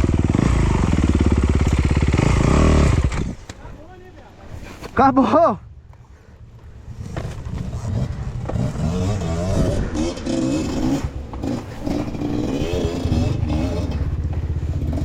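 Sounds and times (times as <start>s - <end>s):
dirt bike engine revving: 0.0s - 3.5s, 6.9s - 15.0s.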